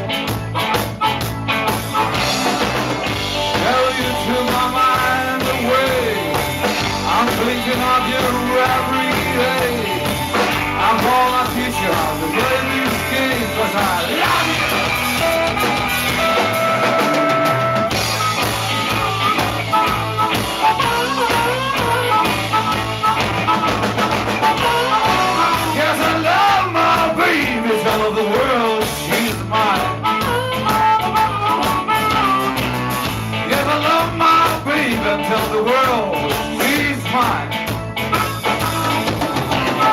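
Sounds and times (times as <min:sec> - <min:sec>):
rock band guitars and drums: 0:00.0 - 0:39.9
person singing: 0:03.4 - 0:17.4, 0:24.4 - 0:32.5, 0:33.4 - 0:37.6.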